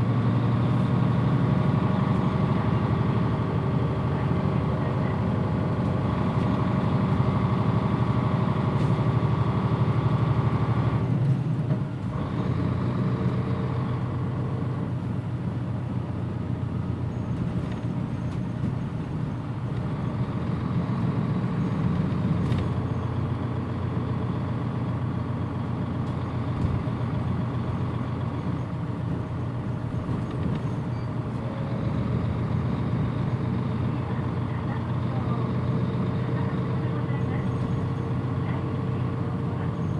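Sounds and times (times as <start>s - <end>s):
bus diesel engine drone: 0.0s - 39.9s.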